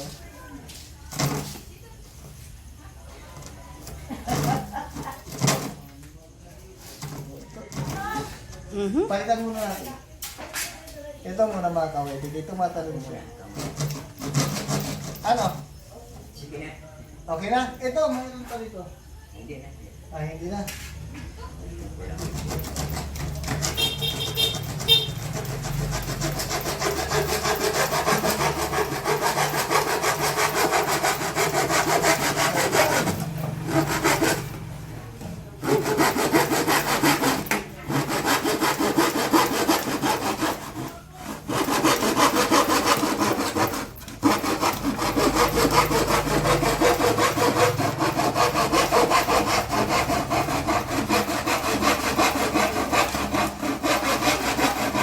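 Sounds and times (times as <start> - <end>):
hand saw cutting plywood: 1.1 - 1.6, 3.4 - 5.9, 7.0 - 8.6, 13.5 - 15.7, 22.1 - 55.0.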